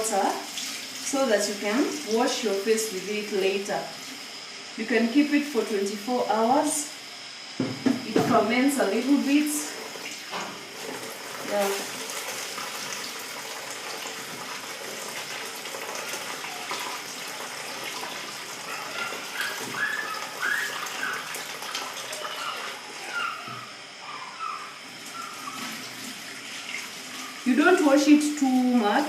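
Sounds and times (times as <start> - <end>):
water running and splashing: 0.0 - 2.5, 9.7 - 23.2, 24.9 - 29.0
rice washed by hand in water: 9.7 - 23.2.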